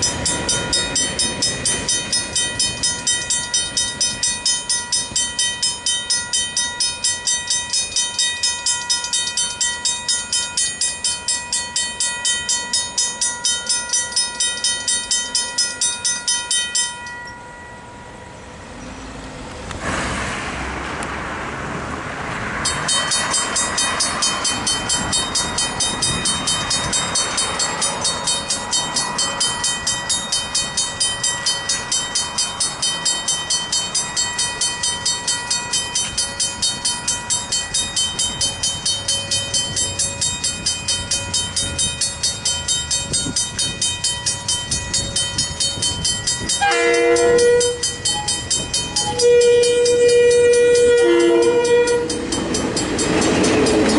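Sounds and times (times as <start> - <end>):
level crossing bells clanging: 0.0 - 18.9, 22.6 - 53.9
train horn: 46.5 - 48.4, 49.0 - 52.3.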